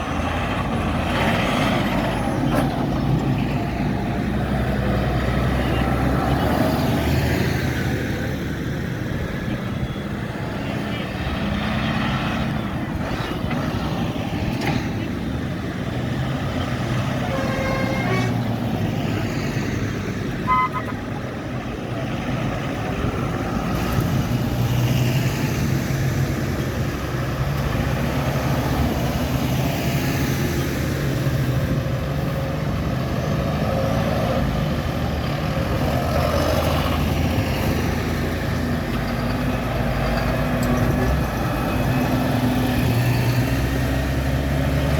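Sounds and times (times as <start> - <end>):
tractor and lorry engines: 0.0 - 44.9
horn toot: 17.2 - 18.5, 20.4 - 21.0.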